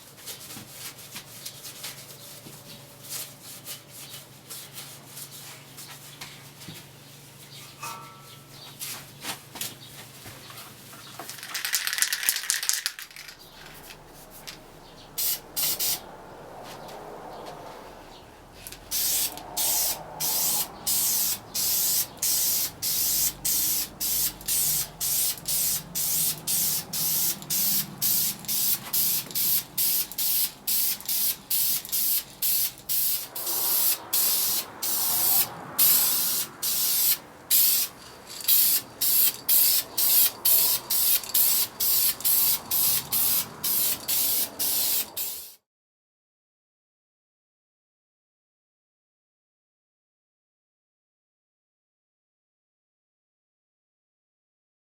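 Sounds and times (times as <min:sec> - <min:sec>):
spray can bursts: 0:11.2 - 0:14.6, 0:15.2 - 0:16.0, 0:18.8 - 0:45.6.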